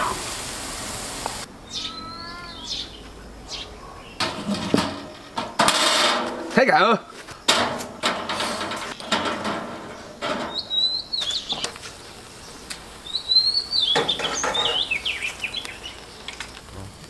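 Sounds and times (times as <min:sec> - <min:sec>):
songbird chirping: 0:01.4 - 0:04.9, 0:09.9 - 0:16.6
knocks and rustles: 0:04.2 - 0:12.0.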